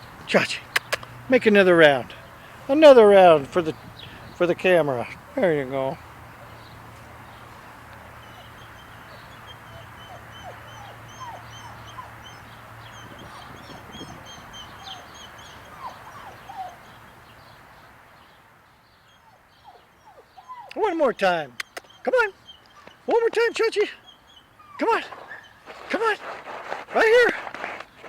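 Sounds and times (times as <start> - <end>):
birds chirping: 0.0 - 28.0
squeaky bird calls: 8.2 - 16.9.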